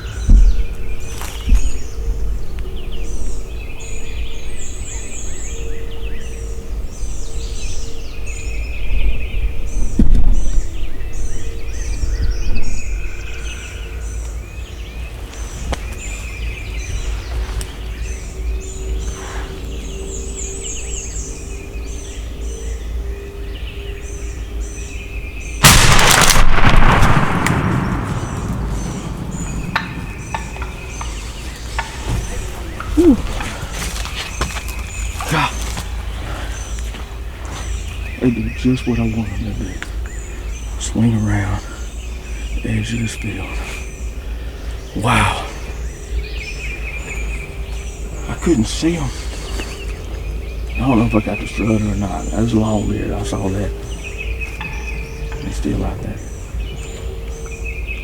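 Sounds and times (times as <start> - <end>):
songbirds chirping: 0.0 - 58.0
shotgun shot: 25.6 - 30.8.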